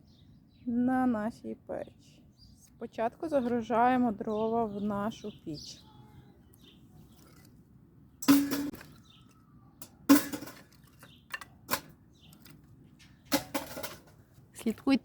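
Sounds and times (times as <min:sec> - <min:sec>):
firewood clunking into metal stove: 0:08.2 - 0:09.2, 0:09.8 - 0:14.2.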